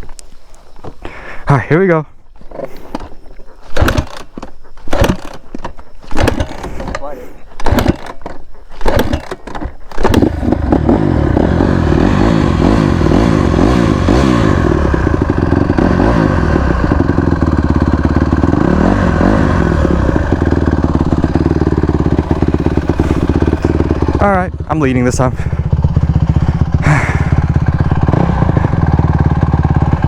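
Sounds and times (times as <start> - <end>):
clattering knocks: 3.7 - 7.0, 7.6 - 10.3
dirt bike engine revving: 3.7 - 30.0.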